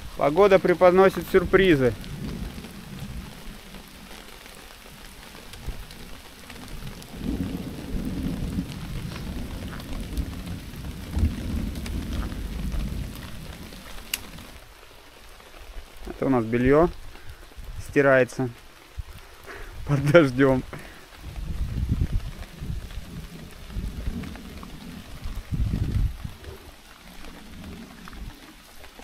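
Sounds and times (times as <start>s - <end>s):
steady rain falling: 0.0s - 29.0s
low roll of thunder: 0.6s - 14.6s, 20.0s - 28.6s.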